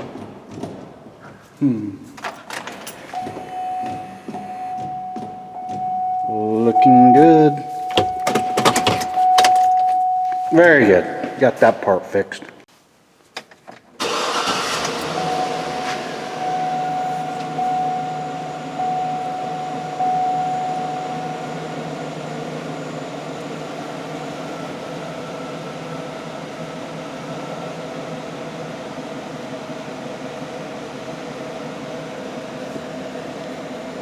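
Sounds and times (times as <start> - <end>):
steady higher tone: 3.2 - 11.8, 15.0 - 26.0
truck engine idling: 14.0 - 34.0.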